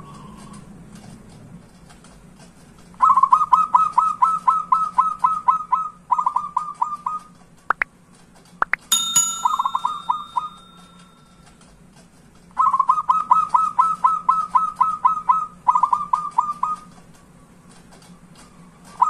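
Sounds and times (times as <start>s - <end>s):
metallic ding: 8.9s - 11.3s.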